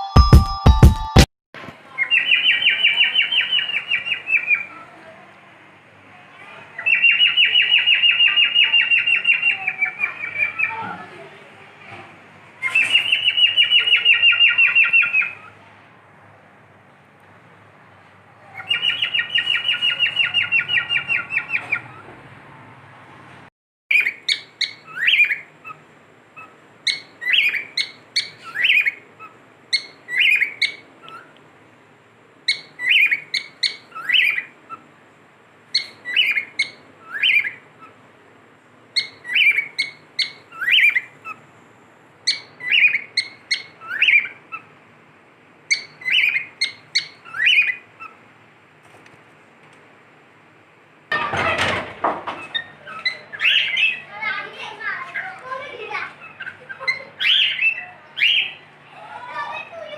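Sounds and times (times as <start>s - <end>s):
cockatiel rattling trills: 45.7s - 48.2s.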